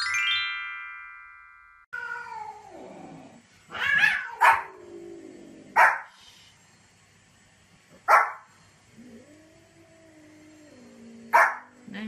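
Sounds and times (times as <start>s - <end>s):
chime-like jingle: 0.0s - 1.9s
small dog barking: 3.9s - 4.8s, 5.8s - 6.1s, 8.0s - 8.5s, 11.3s - 11.7s.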